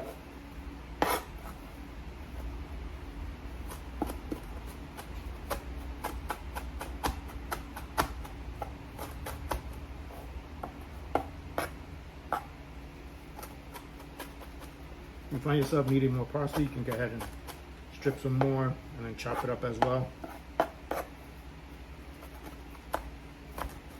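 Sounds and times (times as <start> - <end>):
steady low hum: 0.0 - 23.9
knife chopping on cutting board: 1.0 - 1.5, 3.6 - 12.5, 15.4 - 21.1, 22.2 - 23.9.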